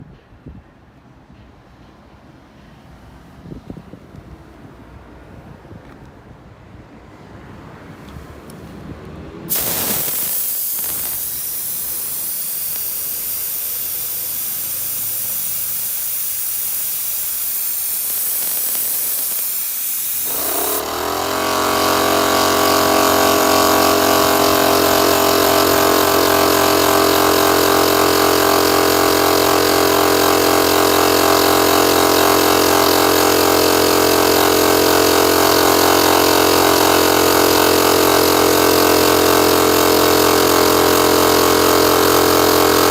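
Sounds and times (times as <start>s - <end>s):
compressed air hissing: 9.5s - 39.1s
compressor motor running: 9.5s - 42.9s.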